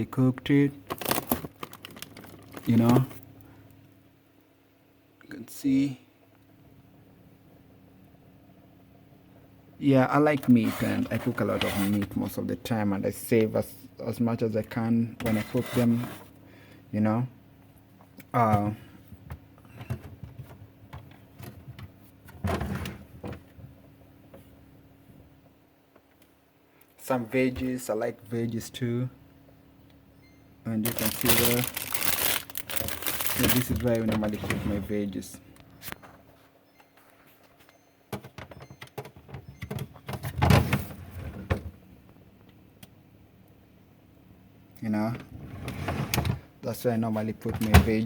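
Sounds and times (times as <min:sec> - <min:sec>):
plastic drawer sliding scrape: 0:10.4 - 0:12.2, 0:15.2 - 0:16.3, 0:30.8 - 0:34.9, 0:45.3 - 0:46.4.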